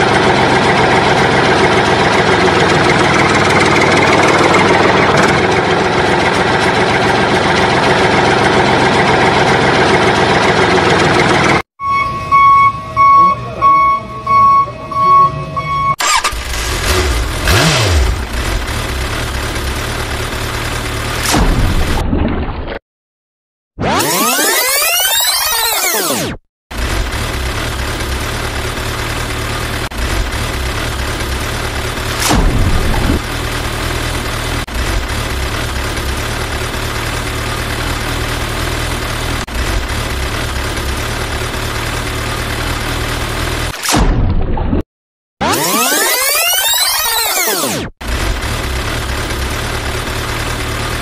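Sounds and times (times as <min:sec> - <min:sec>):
truck engine running: 0:00.0 - 0:21.8, 0:26.7 - 0:43.7, 0:48.0 - 0:51.0
electronic beeping: 0:11.8 - 0:16.1, 0:45.4 - 0:47.8.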